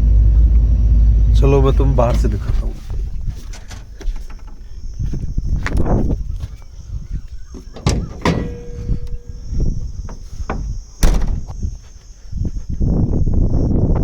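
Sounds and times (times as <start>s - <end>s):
cab door opening: 1.8s - 11.7s
knocks and thumps of climbing: 2.2s - 12.0s.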